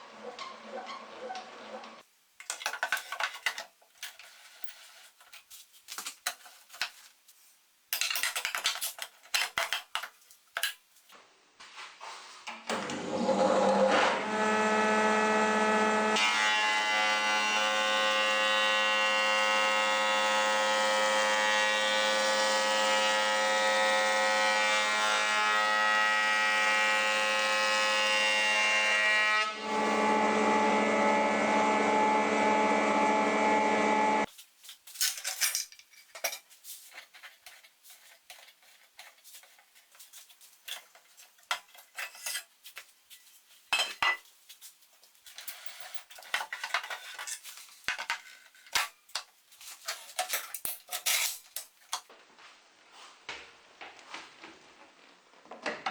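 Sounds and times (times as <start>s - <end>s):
jointer-planer motor whine: 12.7s - 34.3s.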